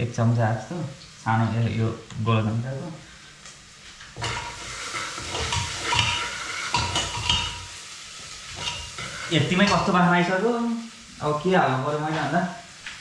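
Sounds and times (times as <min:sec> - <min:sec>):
paste sizzling in a pan: 0:02.9 - 0:13.0
spoon clinking against pan: 0:04.2 - 0:07.8, 0:08.5 - 0:10.0
spoon stirring and scraping: 0:04.2 - 0:10.0.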